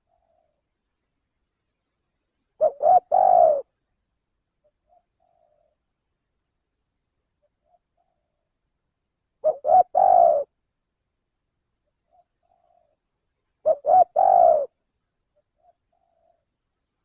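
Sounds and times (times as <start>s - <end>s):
dove cooing: 0.0s - 0.6s, 2.6s - 3.7s, 4.6s - 5.8s, 9.4s - 10.6s, 12.0s - 13.0s, 13.6s - 14.8s, 15.4s - 16.6s.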